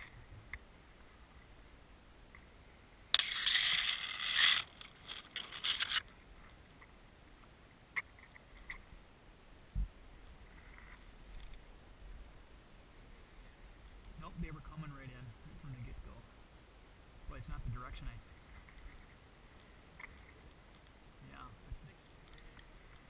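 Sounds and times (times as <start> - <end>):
scraping and rustling: 3.2 - 6.6
faint clicks: 18.4 - 21.0, 21.9 - 23.0.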